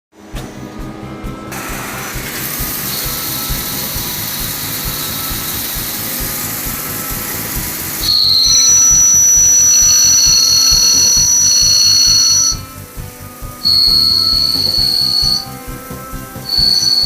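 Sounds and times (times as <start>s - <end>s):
high-pitched two-tone whine: 0.2s - 17.0s
lathe cutting metal: 1.4s - 17.0s.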